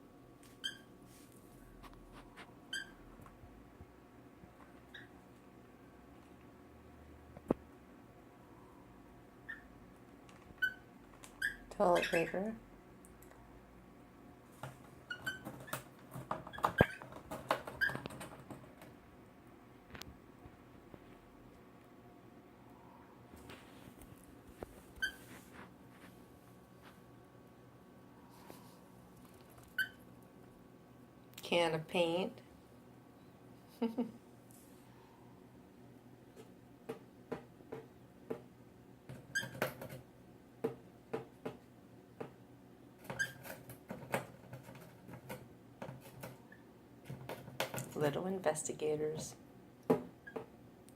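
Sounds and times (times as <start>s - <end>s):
bird feet tapping and scratching: 14.5s - 19.0s, 43.0s - 48.0s.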